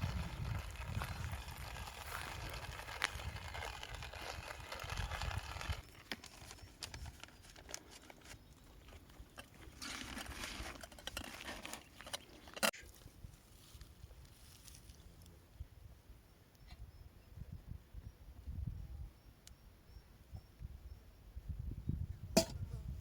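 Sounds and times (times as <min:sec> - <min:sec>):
crunching and crinkling: 0:00.0 - 0:15.3.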